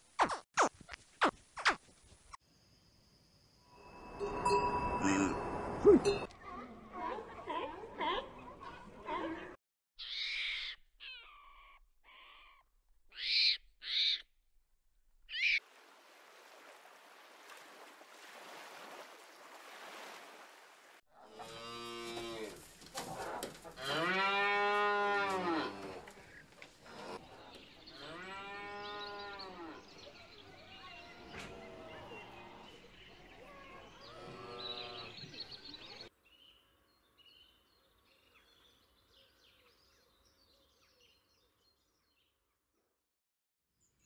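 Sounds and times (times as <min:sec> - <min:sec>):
cattle mooing: 0:21.2 - 0:22.6, 0:23.7 - 0:26.2.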